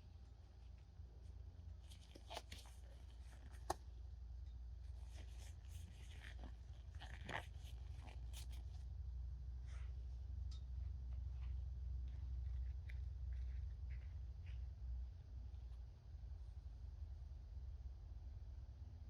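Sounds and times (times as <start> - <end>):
steady low rumble: 7.6 - 19.0.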